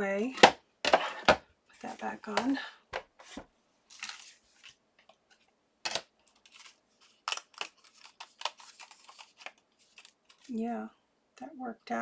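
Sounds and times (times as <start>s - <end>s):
paper crackling: 5.9s - 10.5s.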